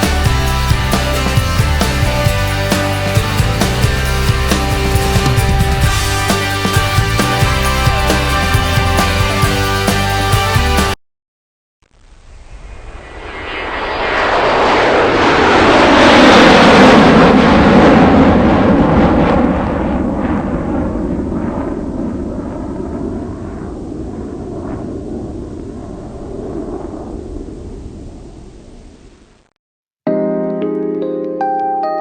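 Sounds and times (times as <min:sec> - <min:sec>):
jet airliner engine noise: 0:12.2 - 0:29.5.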